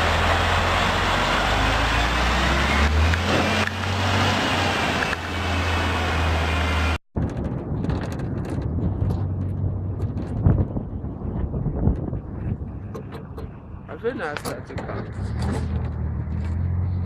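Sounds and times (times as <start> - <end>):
heavy vehicle engine drone: 0.0 - 7.0, 7.6 - 17.0
road noise: 0.0 - 17.0.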